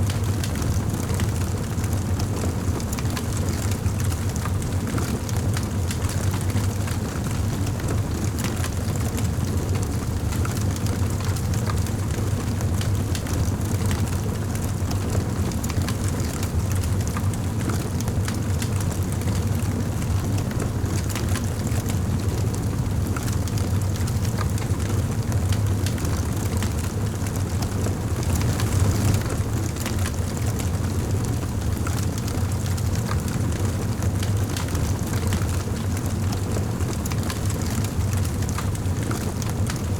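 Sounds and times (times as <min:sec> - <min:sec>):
wood fire rumbling: 0:00.1 - 0:39.9
logs crackling and popping: 0:22.6 - 0:39.8.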